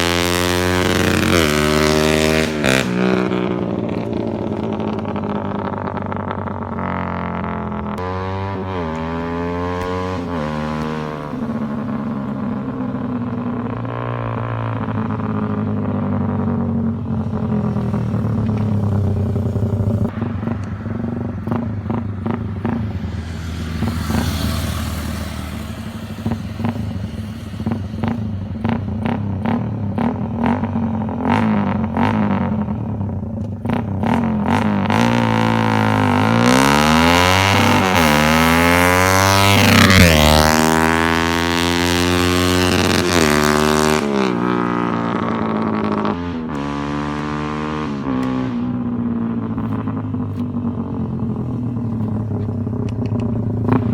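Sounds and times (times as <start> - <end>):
exhaust crackles: 0.0 - 53.9
motorcycle engine revving: 0.0 - 53.9.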